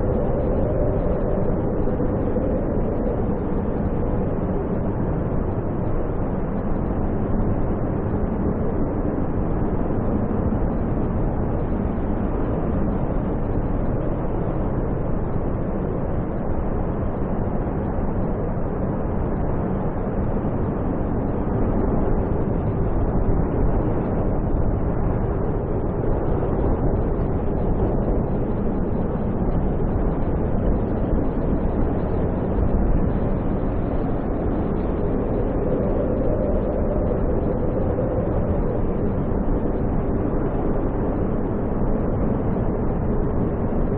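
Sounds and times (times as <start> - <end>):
snowstorm wind roaring: 0.0 - 43.9.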